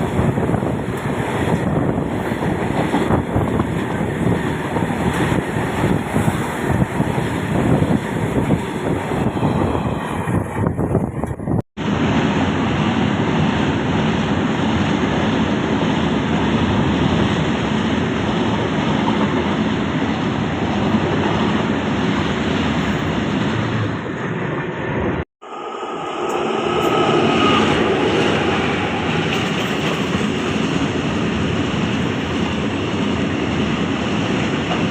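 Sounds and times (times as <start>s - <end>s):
passenger train rumbling: 0.0s - 34.9s.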